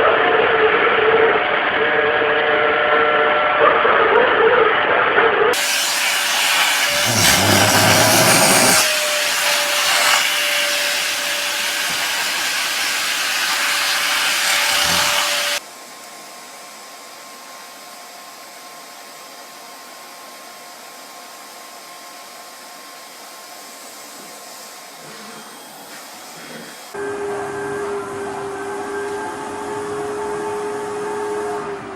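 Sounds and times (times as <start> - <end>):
vacuum cleaner running: 5.6 - 15.7, 22.3 - 31.9.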